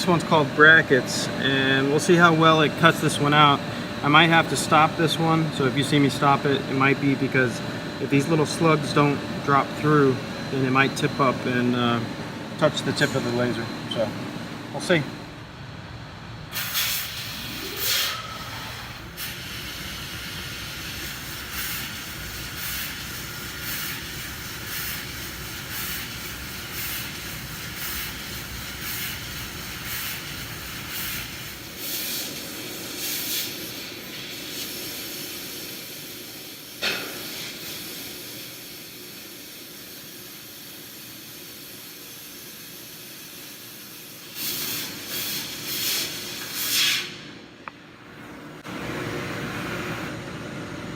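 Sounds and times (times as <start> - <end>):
laser cutter gas hiss: 0.0 - 14.1, 16.5 - 47.4
laser cutter cutting bursts: 16.6 - 34.7.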